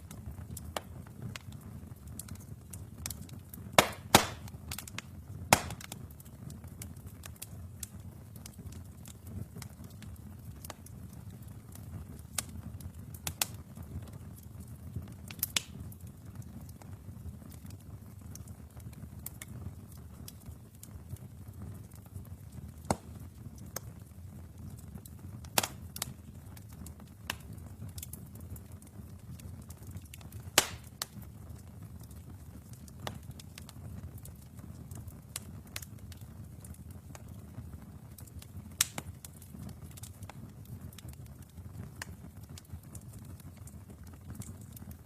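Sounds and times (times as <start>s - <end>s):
fire flames rumbling: 0.0s - 45.0s
wood fire crackles and pops: 0.0s - 45.0s.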